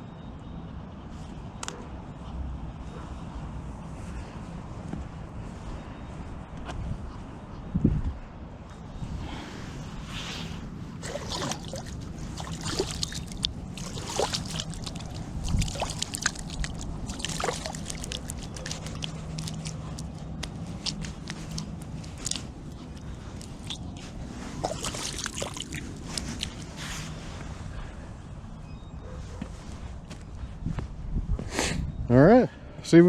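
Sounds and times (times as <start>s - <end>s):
lake water sloshing: 10.9s - 27.3s
small splashes and drips: 11.0s - 26.8s.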